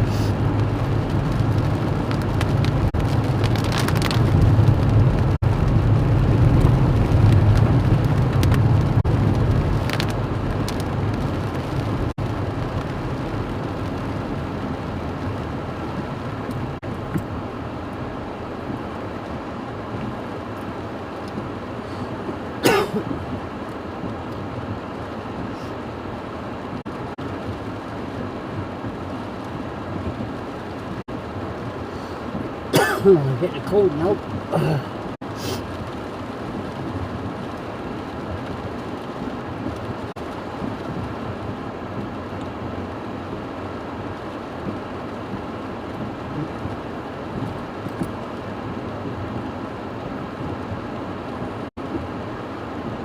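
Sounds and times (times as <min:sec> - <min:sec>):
heavy low rumble: 0:00.0 - 0:19.0
wind and rain hiss: 0:00.0 - 0:53.0.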